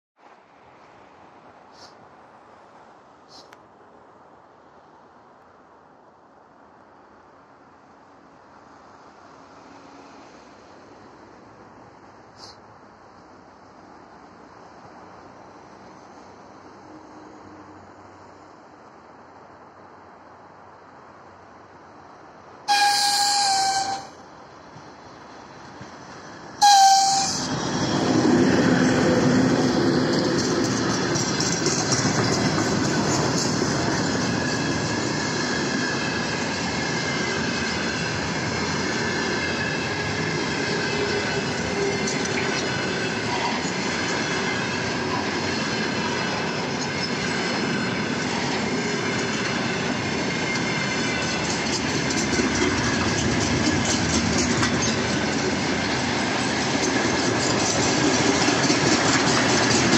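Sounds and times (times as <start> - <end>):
locomotive rushing past: 22.7 - 59.9
freight wagons rumbling: 25.5 - 59.9
wheels clacking over rail joints: 25.6 - 59.9.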